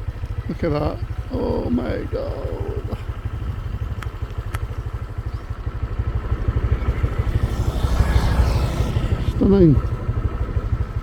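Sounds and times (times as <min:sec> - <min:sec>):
scooter engine running: 0:00.0 - 0:11.0
faint clicks: 0:03.9 - 0:05.4.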